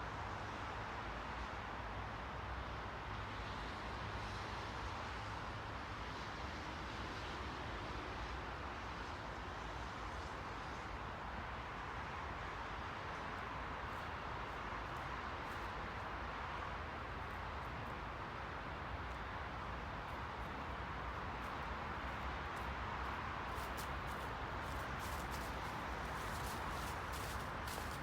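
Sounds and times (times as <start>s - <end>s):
steady rushing noise: 14.0s - 28.0s.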